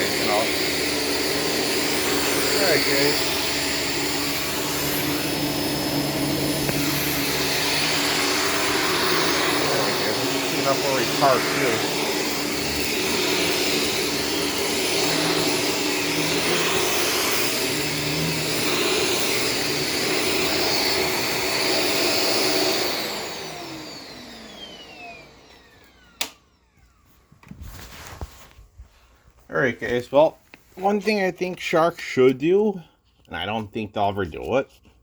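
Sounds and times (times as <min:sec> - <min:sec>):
vacuum motor spinning down: 0:00.0 - 0:27.2
vacuum cleaner running: 0:00.0 - 0:30.1.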